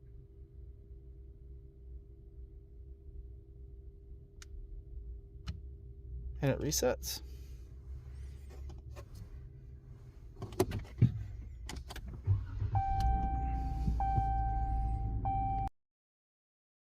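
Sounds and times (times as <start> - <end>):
low hum: 11.2 - 15.7
electronic warning tone: 12.7 - 15.7.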